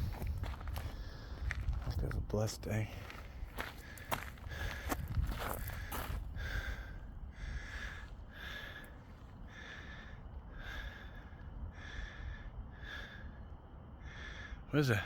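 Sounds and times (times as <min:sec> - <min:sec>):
person breathing hard: 0:03.0 - 0:14.7.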